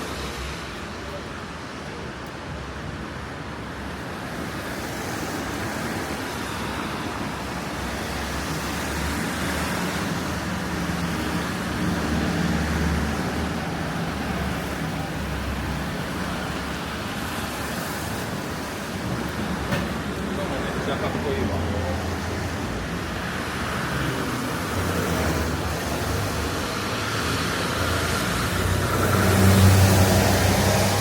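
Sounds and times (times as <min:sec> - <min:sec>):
tyres hissing on wet road: 0:00.0 - 0:31.0
vehicle engine passing: 0:27.3 - 0:31.0.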